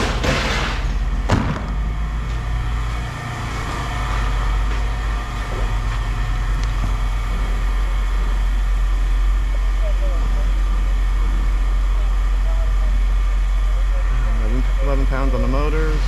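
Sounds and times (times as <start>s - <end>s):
metal clank: 0.0s - 1.6s
heavy machine engine droning: 0.0s - 16.0s.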